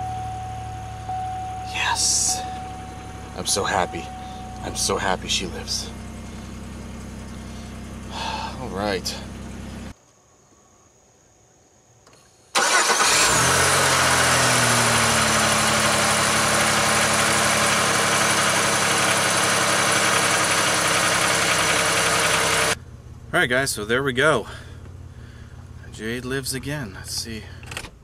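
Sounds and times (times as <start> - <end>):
car engine starting and idling: 0.0 - 10.0, 12.5 - 28.0.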